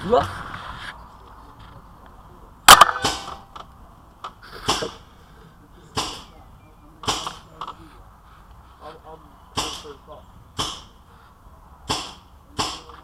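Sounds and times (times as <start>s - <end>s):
paintball marker loud cracks: 2.7s - 3.5s.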